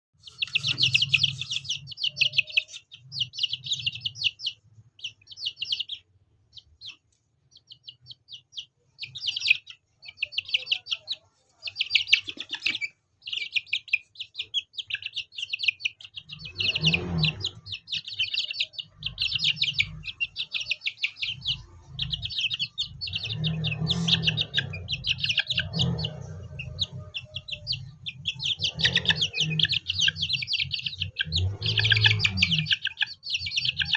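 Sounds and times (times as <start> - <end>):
chicks chirping: 0.2 - 33.9.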